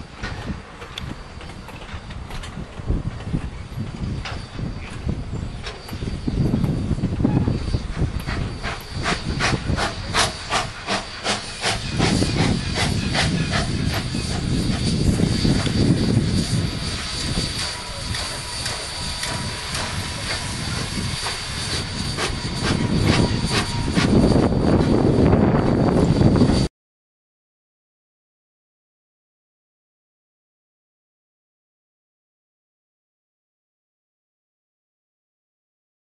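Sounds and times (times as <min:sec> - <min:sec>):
steam locomotive beats: 0:00.0 - 0:26.7
steam hissing: 0:00.1 - 0:26.7.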